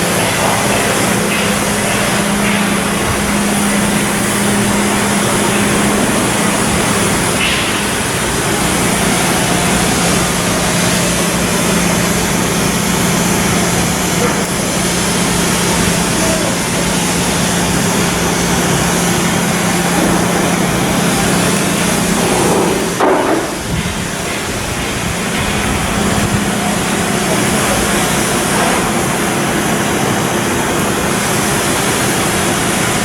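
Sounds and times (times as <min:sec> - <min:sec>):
mechanical work noise: 0:00.0 - 0:33.0
loud clatter: 0:18.8 - 0:26.4.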